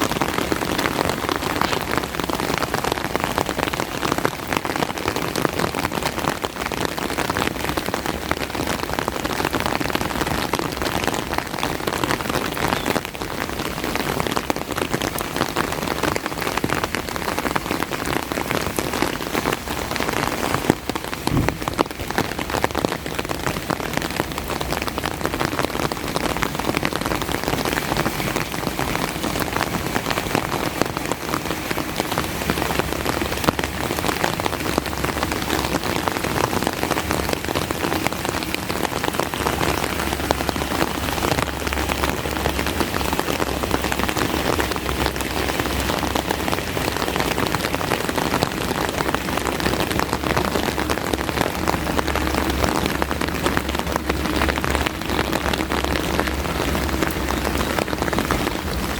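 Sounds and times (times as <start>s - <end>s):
rain falling: 0.0s - 58.9s
low rumble: 21.1s - 22.6s.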